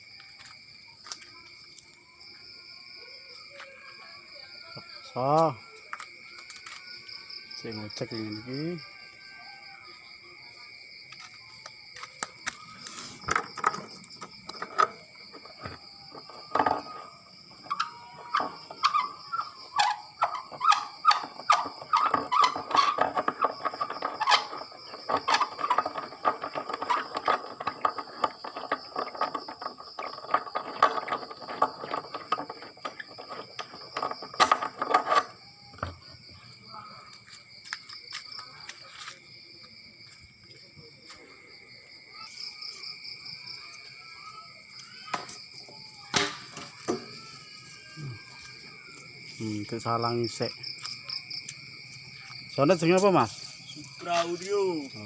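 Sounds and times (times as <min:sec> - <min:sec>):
crickets chirping: 0:00.0 - 0:55.0
sharp clicks and knocks: 0:13.2 - 0:36.1.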